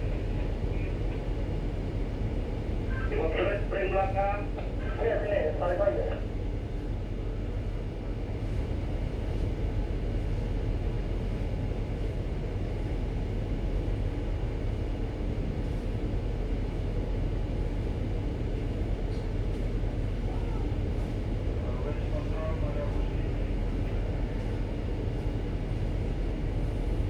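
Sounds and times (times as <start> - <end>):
ship engines rumbling: 0.0 - 7.6.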